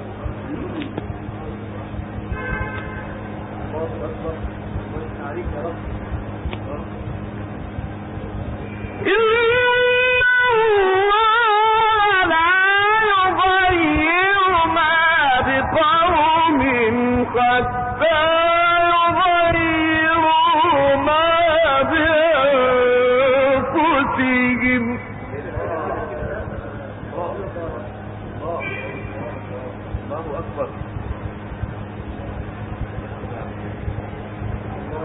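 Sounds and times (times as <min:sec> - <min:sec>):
man chanting melodically: 0:08.9 - 0:31.3.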